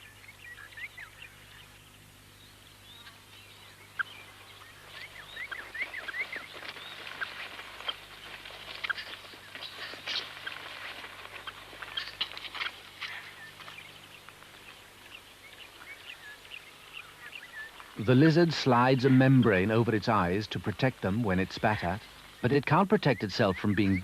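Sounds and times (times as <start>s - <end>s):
mongooses chirping in alarm: 2.8s - 10.7s.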